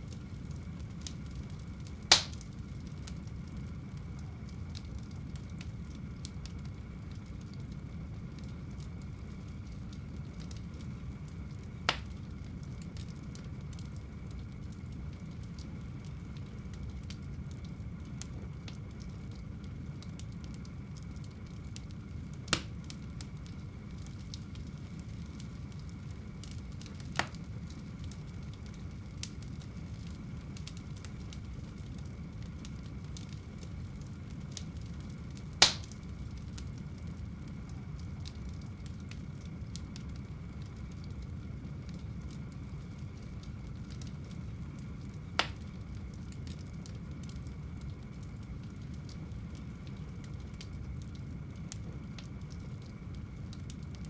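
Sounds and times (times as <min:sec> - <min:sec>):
fire crackling: 0:00.0 - 0:54.0
wood fire popping: 0:00.0 - 0:54.0
fire flames rushing: 0:00.2 - 0:07.3, 0:19.6 - 0:36.4.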